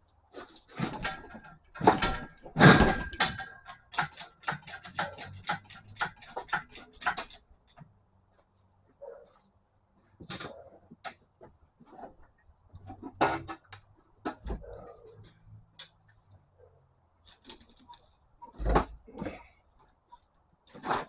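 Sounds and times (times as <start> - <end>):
metal clanking: 0.7 - 7.4.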